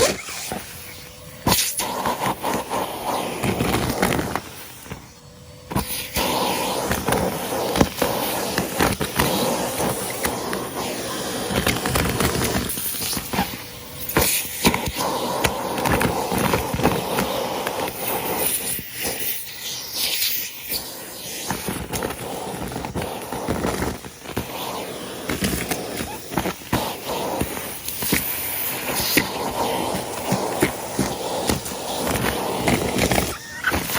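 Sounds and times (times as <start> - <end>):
debris crackling up vacuum hose: 0.0 - 33.9
vacuum cleaner motor drone: 0.0 - 33.9.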